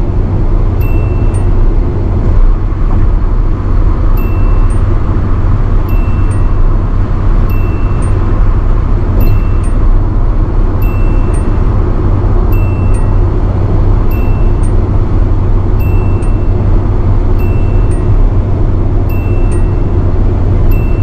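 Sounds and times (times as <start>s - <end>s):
engine and tyre drone: 0.0s - 21.0s
two-note dashboard warning chime: 0.8s - 1.9s, 4.1s - 10.1s, 10.7s - 15.1s, 15.7s - 18.4s, 19.0s - 21.0s.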